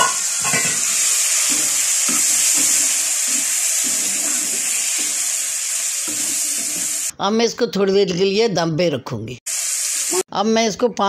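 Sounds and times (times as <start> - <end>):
spatula scraping a pan: 0.0 - 7.1
vegetables sizzling in hot oil: 0.0 - 7.1, 9.5 - 10.2.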